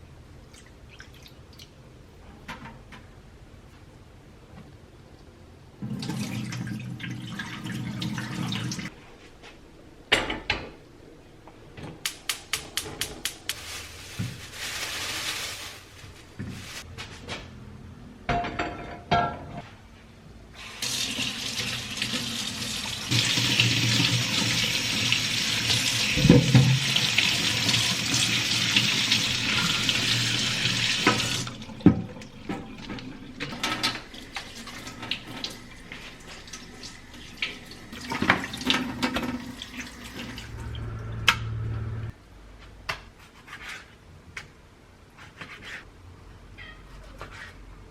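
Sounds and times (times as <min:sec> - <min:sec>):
tap running into sink: 0:25.7 - 0:27.0.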